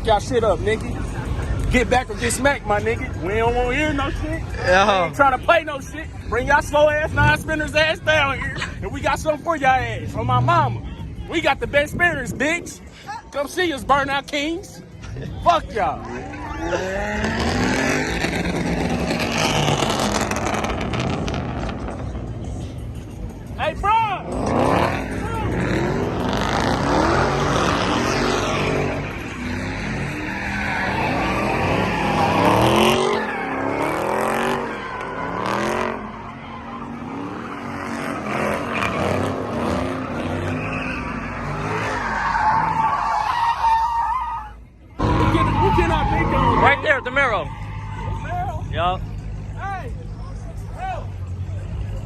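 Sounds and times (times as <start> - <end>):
tires squealing: 0.0 - 52.0
car engine revving: 16.0 - 23.4, 24.2 - 42.9.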